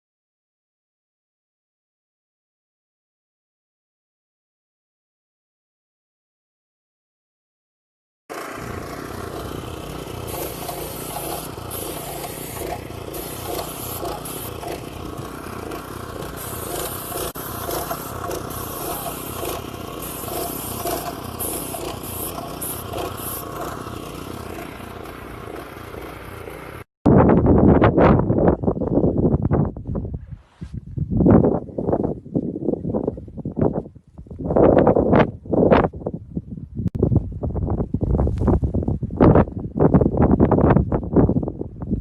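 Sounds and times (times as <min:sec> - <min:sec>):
machine running steadily: 0:08.3 - 0:26.9.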